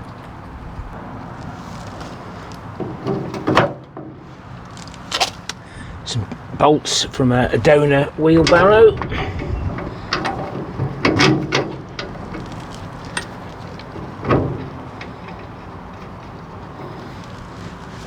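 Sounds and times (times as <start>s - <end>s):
metal clicks and knocks of tools: 8.4s - 18.0s.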